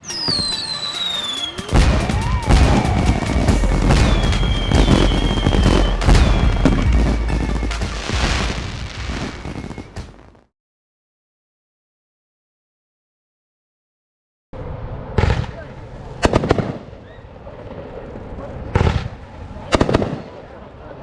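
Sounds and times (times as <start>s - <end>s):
music: 0.0s - 10.3s
whistling tones: 0.0s - 10.3s
fireworks bangs and booms: 0.0s - 10.5s.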